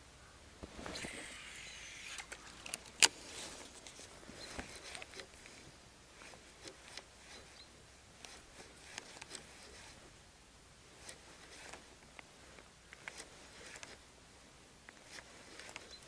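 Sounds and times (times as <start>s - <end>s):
clicks from handling rod and reel: 0.8s - 5.6s, 6.2s - 10.0s, 11.0s - 14.0s, 14.8s - 16.0s
fishing reel whirring: 0.9s - 3.0s.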